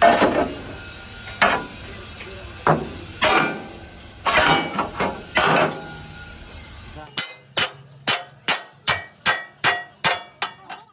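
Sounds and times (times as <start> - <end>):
hammer striking metal: 2.7 - 6.1, 7.1 - 10.6.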